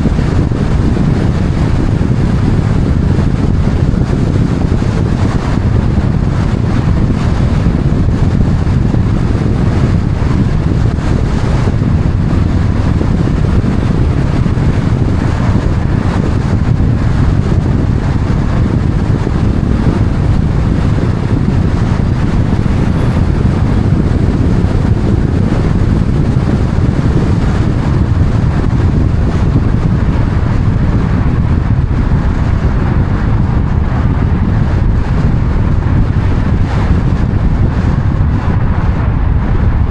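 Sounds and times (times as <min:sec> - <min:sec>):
moving vehicle rumble: 0:00.0 - 0:39.9
wind noise: 0:00.0 - 0:39.9.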